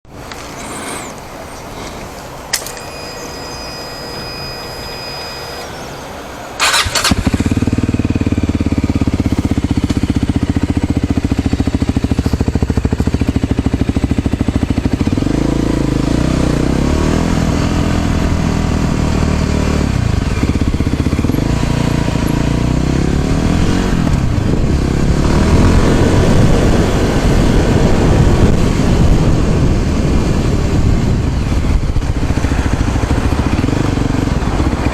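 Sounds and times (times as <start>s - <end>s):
motorcycle engine starting and revving: 0.2s - 34.9s
steady electronic beep: 2.6s - 6.6s.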